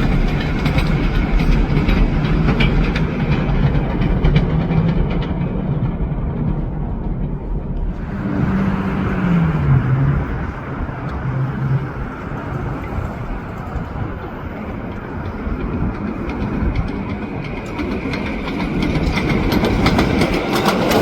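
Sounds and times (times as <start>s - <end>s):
train rumble and motor hum: 0.0s - 21.0s
wheels hissing on rail: 6.8s - 21.0s.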